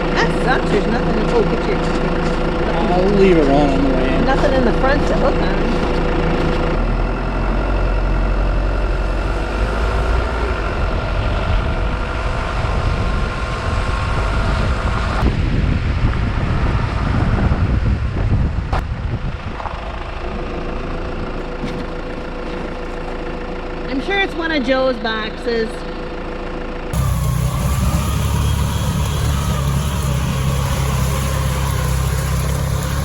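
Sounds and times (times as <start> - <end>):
steady engine whine: 0.0 - 33.0
vehicle engine running: 0.0 - 33.0.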